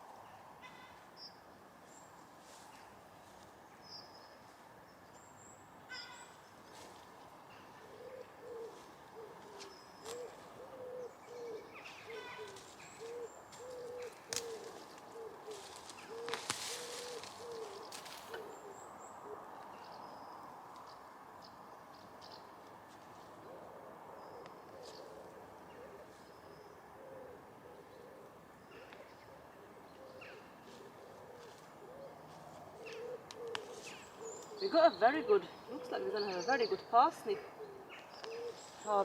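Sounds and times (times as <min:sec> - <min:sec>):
small birds high chirps: 0:30.0 - 0:39.0.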